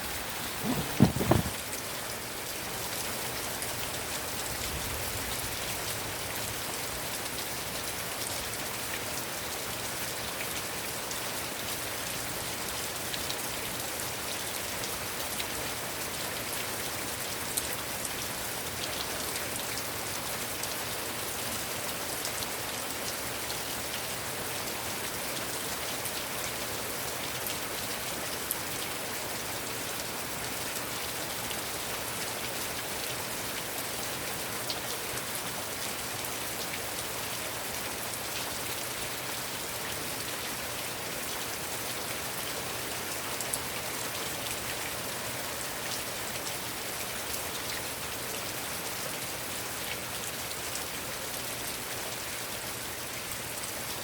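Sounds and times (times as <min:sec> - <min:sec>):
heavy rain hiss: 0:00.0 - 0:06.3.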